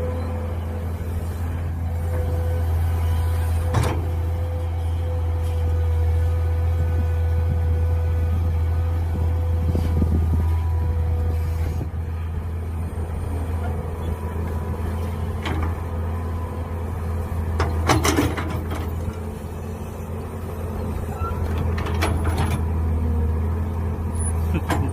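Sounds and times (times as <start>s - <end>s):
excavator engine running: 0.0s - 24.9s
hydraulic whine: 8.4s - 23.2s.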